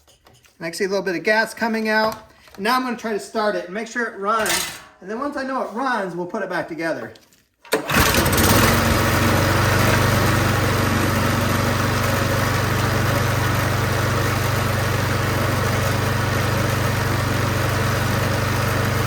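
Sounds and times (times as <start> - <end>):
snowblower engine running: 7.7 - 19.0.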